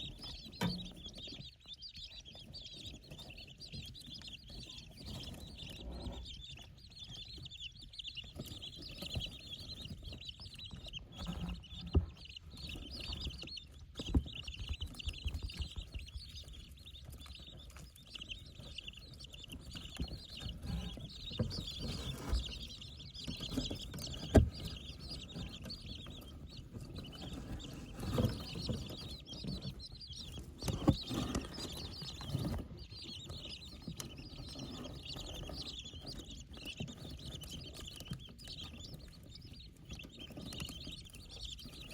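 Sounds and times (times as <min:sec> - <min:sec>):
chicks peeping: 0:00.0 - 0:41.9
sharp taps and knocks: 0:08.3 - 0:39.2.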